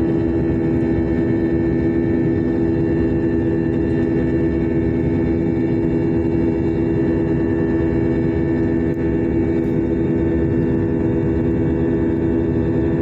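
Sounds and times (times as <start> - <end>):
jet engines droning in cabin: 0.0 - 13.0.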